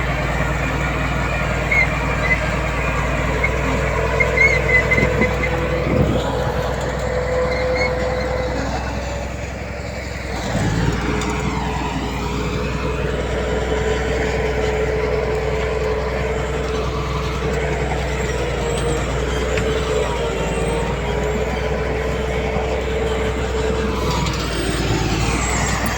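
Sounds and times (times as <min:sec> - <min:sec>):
heavy diesel machinery running: 0:00.0 - 0:25.9.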